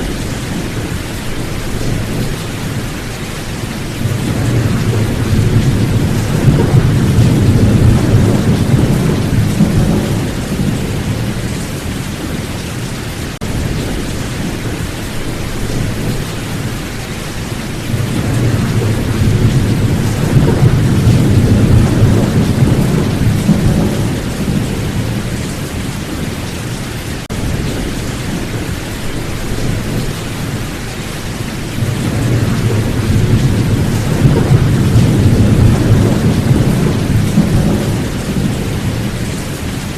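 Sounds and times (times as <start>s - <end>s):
rolling thunder: 0.0s - 26.4s, 27.3s - 39.9s
steady rain: 0.0s - 39.9s.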